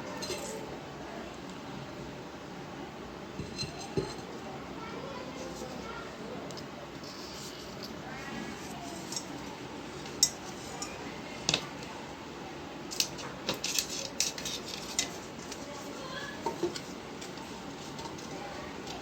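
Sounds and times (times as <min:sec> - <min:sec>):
hard objects clicking and knocking: 0:16.4 - 0:19.0.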